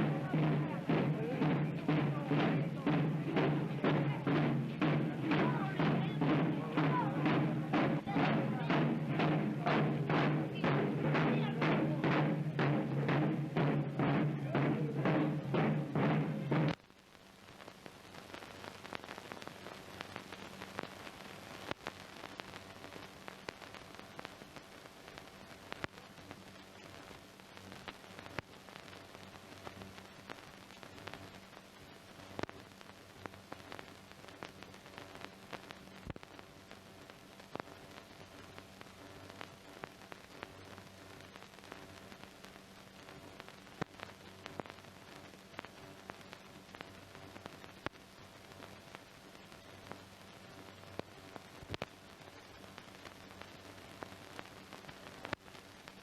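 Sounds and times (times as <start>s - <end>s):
drum-heavy music: 0.0s - 16.8s
faint crackles and clicks: 0.0s - 56.0s
faint low hum: 0.0s - 56.0s
film soundtrack surface hiss: 0.0s - 56.0s.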